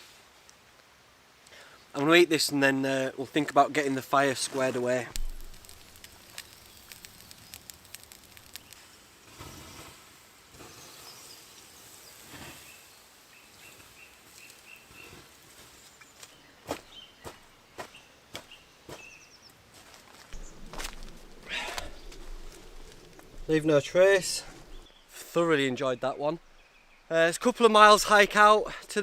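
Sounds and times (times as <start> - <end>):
sharp clicks and knocks: 5.1 - 8.8.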